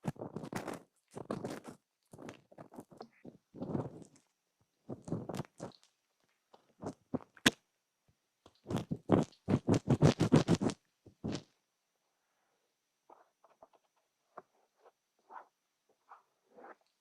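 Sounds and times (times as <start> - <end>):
scratching in ear: 0.0 - 4.2, 8.6 - 11.5, 13.1 - 17.0.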